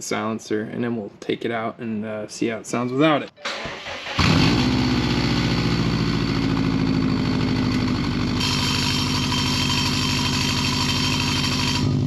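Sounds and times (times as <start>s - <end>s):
car engine idling: 3.5s - 12.0s.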